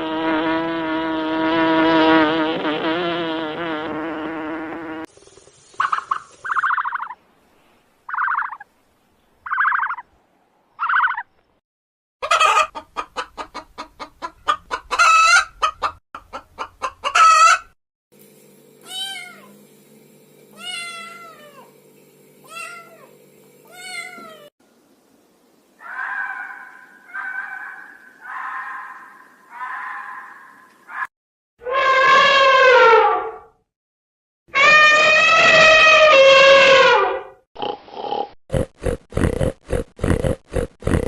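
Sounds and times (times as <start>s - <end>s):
drawn-out rising and falling calls: 5.2s - 7.2s, 8.1s - 8.7s, 9.4s - 10.1s, 10.8s - 11.3s, 25.8s - 31.1s
rapid pulsed animal calls: 8.1s - 8.6s.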